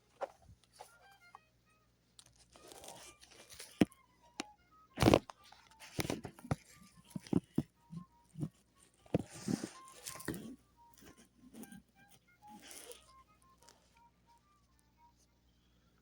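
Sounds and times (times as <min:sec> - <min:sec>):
packaging crinkling and tearing: 0:02.2 - 0:03.9, 0:05.0 - 0:07.6, 0:12.5 - 0:13.8.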